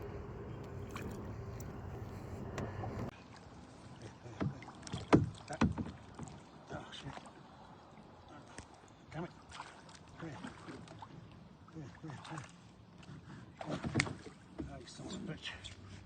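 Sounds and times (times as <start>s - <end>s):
low rumble: 0.0s - 3.1s.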